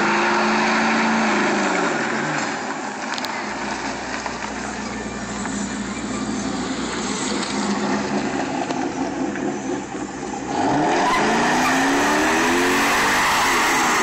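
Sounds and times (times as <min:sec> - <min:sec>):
car engine revving: 0:00.0 - 0:14.0
tires squealing: 0:00.0 - 0:14.0.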